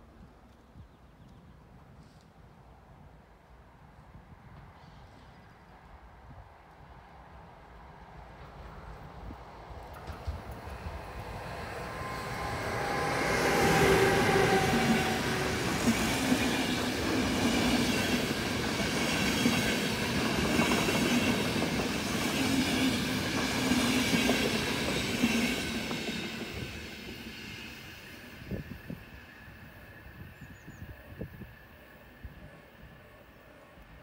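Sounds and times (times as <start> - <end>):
passenger train passing: 6.8 - 34.0.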